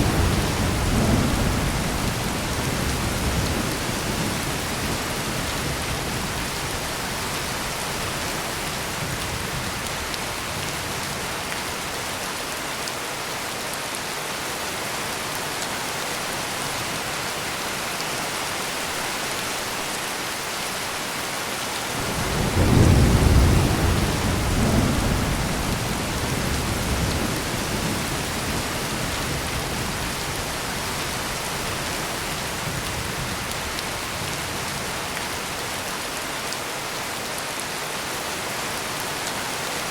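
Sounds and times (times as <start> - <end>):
heavy rain pouring: 0.0 - 39.9
deep thunderclap rolling: 22.0 - 28.6.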